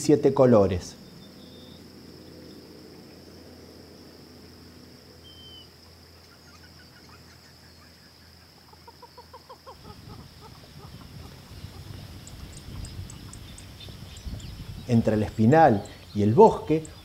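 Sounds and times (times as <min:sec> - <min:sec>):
high insect buzz: 0:01.0 - 0:17.0
bird call notes: 0:05.2 - 0:07.9.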